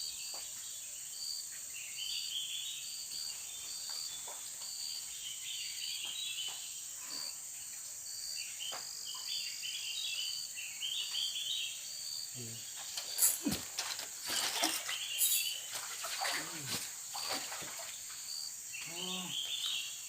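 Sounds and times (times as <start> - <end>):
insects calling: 0.0 - 20.0
knocks and rustles: 12.7 - 18.0.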